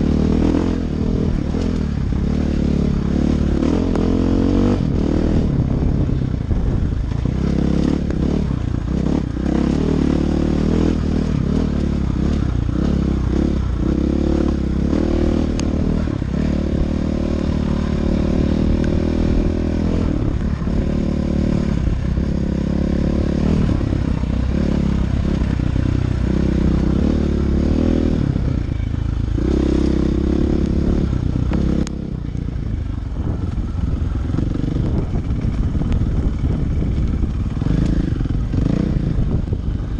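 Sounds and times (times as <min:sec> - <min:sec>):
dirt bike engine revving: 0:00.0 - 0:06.2, 0:07.2 - 0:32.1, 0:33.1 - 0:39.9.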